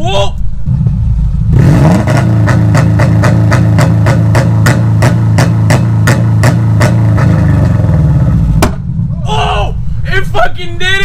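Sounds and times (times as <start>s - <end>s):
engine droning at rev limiter: 0.4s - 9.2s
sharp exhaust bangs: 0.4s - 10.2s.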